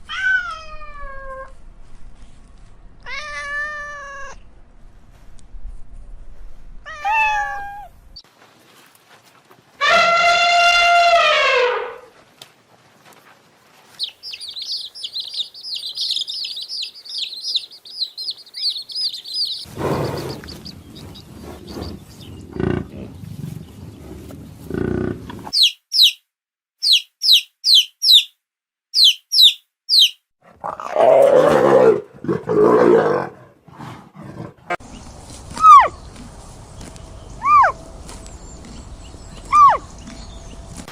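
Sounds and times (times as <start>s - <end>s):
rapid high chirping: 13.9s - 22.2s, 25.5s - 26.2s, 26.8s - 28.4s, 29.0s - 30.2s
low rough roar-like calls: 30.6s - 34.8s.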